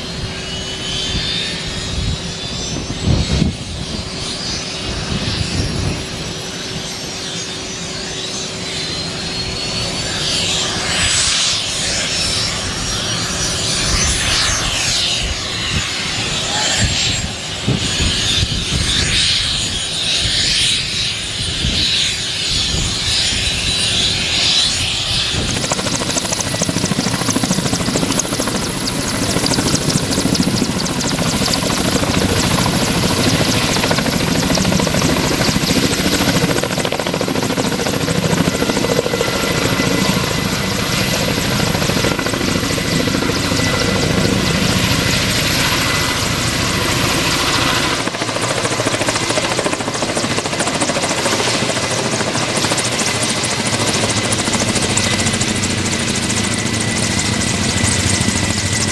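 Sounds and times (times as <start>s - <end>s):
helicopter rotors beating: 0.0s - 58.9s
helicopter turbine whine: 0.0s - 58.9s.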